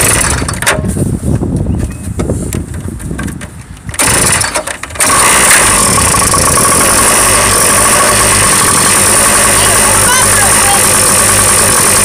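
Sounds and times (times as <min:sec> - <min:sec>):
small motorcycle engine starting: 0:00.0 - 0:00.7, 0:03.9 - 0:12.0.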